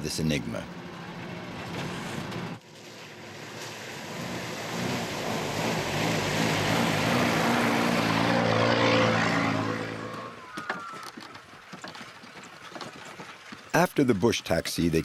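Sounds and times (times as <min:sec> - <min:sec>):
vehicle engine passing: 0:00.5 - 0:11.1.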